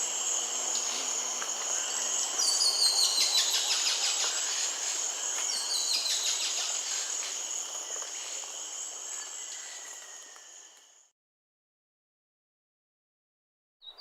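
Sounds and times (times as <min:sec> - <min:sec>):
high-pitched insect chorus: 0:00.0 - 0:11.1.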